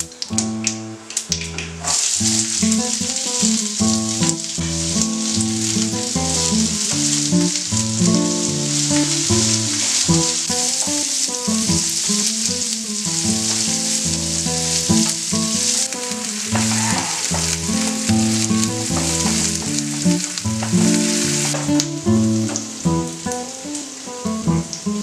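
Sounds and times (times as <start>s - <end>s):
background music with low notes: 0.0s - 25.0s
onions sizzling in frying pan: 0.0s - 25.0s
wooden spatula stirring: 16.3s - 21.8s.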